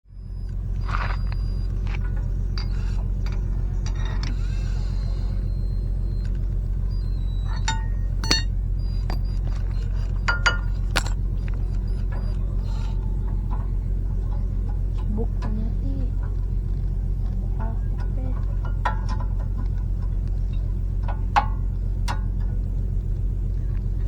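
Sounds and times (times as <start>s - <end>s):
low mechanical hum: 0.0s - 24.0s
metal tools clinking: 0.8s - 15.5s.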